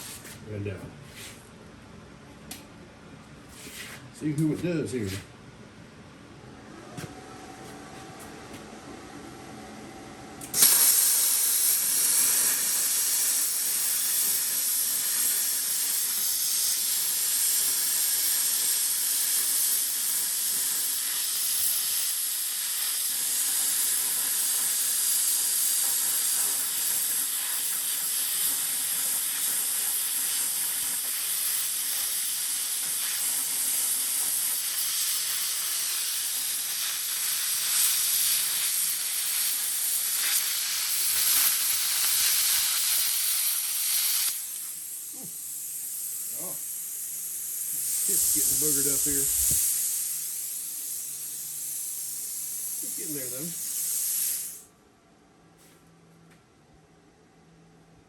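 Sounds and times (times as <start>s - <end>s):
plasma cutter hissing: 10.5s - 54.7s.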